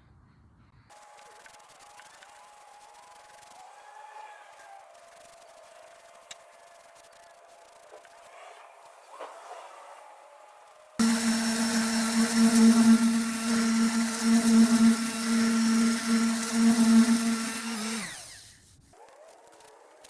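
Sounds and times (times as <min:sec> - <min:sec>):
small electric motor running: 0:11.0 - 0:18.7.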